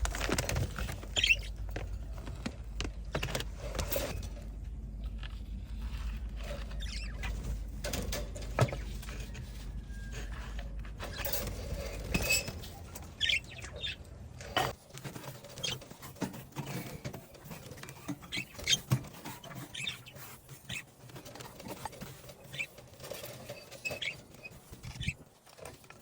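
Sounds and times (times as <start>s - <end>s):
bird cage parts scraping and clattering: 3.2s - 4.6s, 6.4s - 13.5s, 14.4s - 26.0s.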